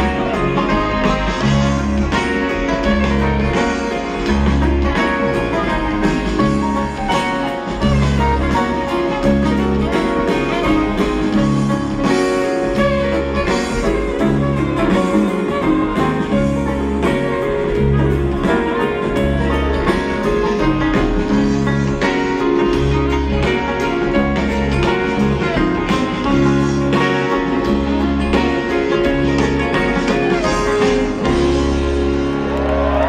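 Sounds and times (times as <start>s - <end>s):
fiddle: 0.0s - 33.0s
guitar: 0.0s - 33.0s.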